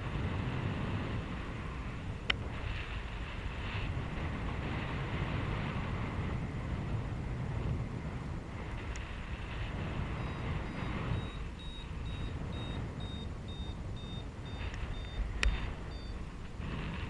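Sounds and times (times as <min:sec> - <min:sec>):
wind on microphone: 0:00.0 - 0:17.0
variometer beeping: 0:10.0 - 0:16.6.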